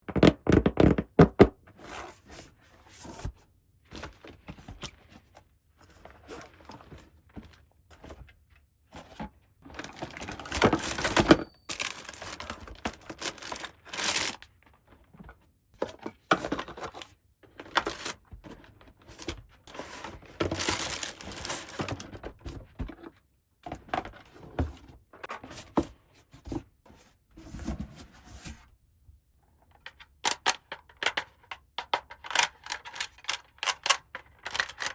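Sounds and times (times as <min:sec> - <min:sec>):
packaging crinkling and tearing: 0:09.8 - 0:14.4, 0:20.4 - 0:22.0
plastic pieces tapping and clicking: 0:30.2 - 0:34.9.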